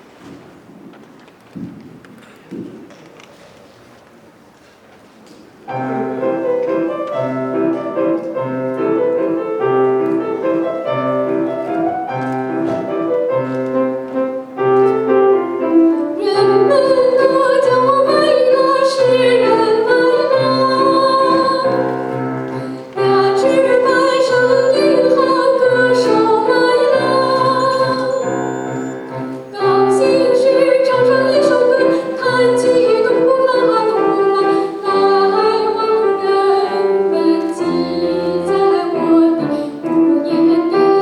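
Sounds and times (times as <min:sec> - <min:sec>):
piano accompaniment: 0:05.6 - 0:41.0
classical singer with vibrato: 0:15.2 - 0:41.0.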